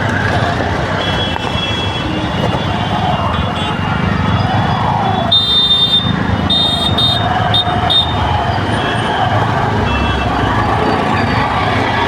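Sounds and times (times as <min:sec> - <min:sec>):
idling traffic rumble: 0:00.0 - 0:12.0
vehicle horn honking: 0:05.3 - 0:08.2.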